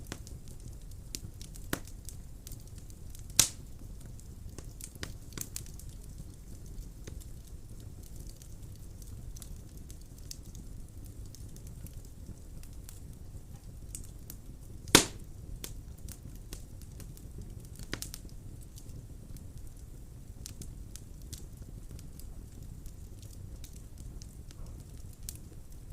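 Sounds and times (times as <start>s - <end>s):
fire rumbling and crackling: 0.0s - 25.9s
loud wood pop: 14.9s - 15.2s.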